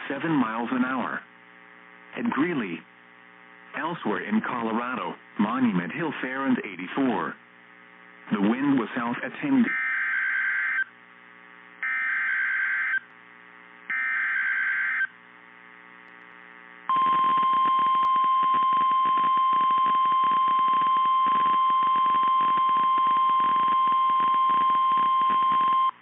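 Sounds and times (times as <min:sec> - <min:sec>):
steady alarm tone: 0:09.7 - 0:10.9, 0:11.8 - 0:13.0, 0:13.9 - 0:15.1, 0:16.9 - 0:26.0.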